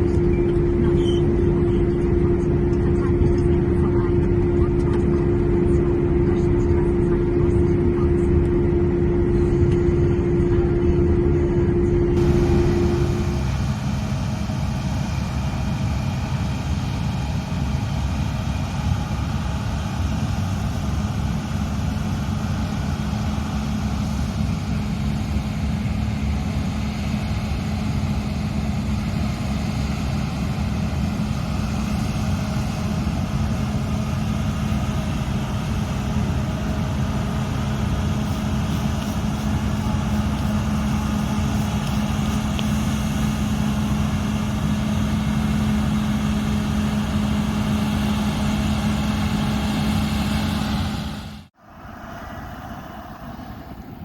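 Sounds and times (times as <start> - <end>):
combine harvester diesel engine: 0.0 - 54.0.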